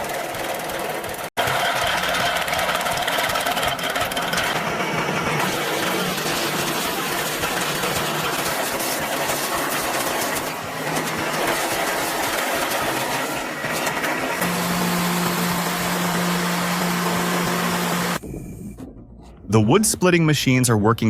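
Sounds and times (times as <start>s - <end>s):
engine under load grinding: 0.0s - 18.2s
steady low hum: 14.4s - 20.2s.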